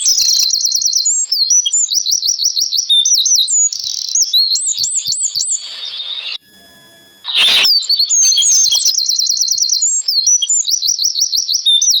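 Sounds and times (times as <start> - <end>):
songbirds chirping: 0.0 - 6.4.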